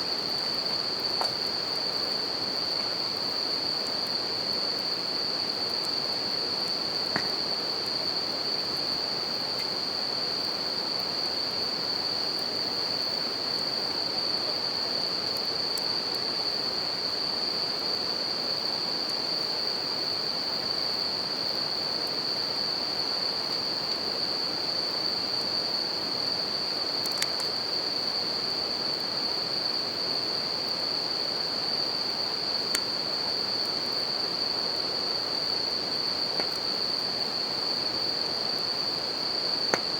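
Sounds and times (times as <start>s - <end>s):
crickets chirping chorus: 0.0s - 39.9s
campfire crackling: 36.3s - 36.7s, 39.7s - 39.9s.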